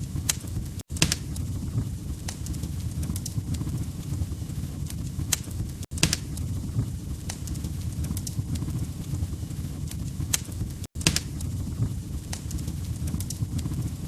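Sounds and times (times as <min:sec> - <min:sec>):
log fire crackling: 0:00.0 - 0:14.0.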